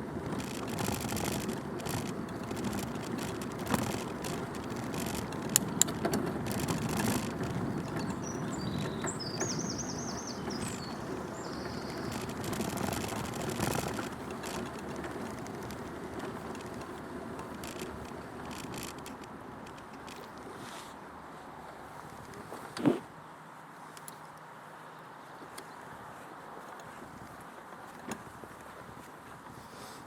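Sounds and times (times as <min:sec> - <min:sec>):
bicycle tyres rumbling: 0:00.0 - 0:23.0, 0:25.8 - 0:30.0
bird singing: 0:07.6 - 0:12.9.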